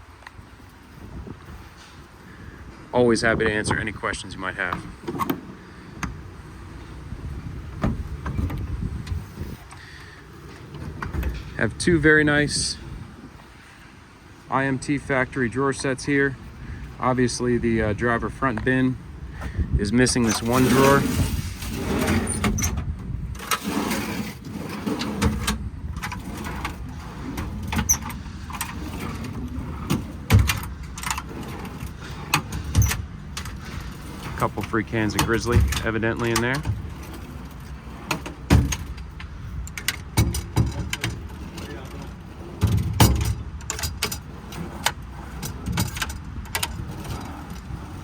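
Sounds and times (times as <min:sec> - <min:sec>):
metal tool drawers opening and shutting: 0:04.5 - 0:12.7, 0:20.0 - 0:48.0
heavy thumps: 0:07.6 - 0:09.8.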